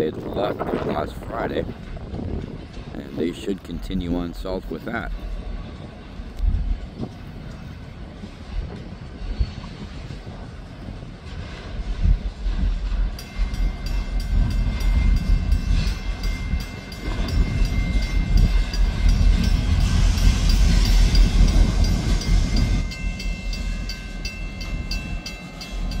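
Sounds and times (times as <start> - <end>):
freight train rumbling past: 0.0 - 26.0
crossing bell ringing: 13.2 - 26.0.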